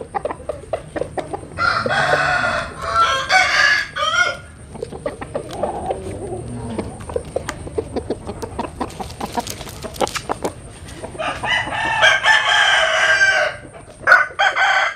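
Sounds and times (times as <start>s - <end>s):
chickens clucking: 0.0s - 14.9s
rooster crowing: 1.6s - 4.6s, 11.2s - 14.9s.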